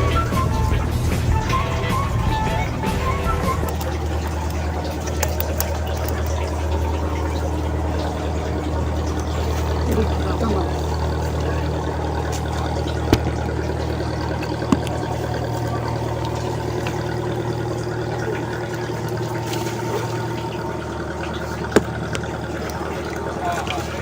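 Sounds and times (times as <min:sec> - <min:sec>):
engine running steadily: 0:00.0 - 0:24.0
sharp clicks: 0:03.5 - 0:06.6.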